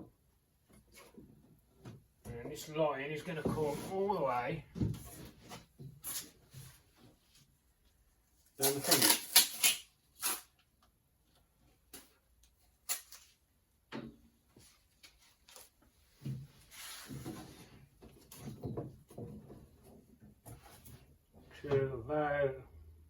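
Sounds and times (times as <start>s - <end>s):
hose rubbing and rustling: 16.6s - 18.5s.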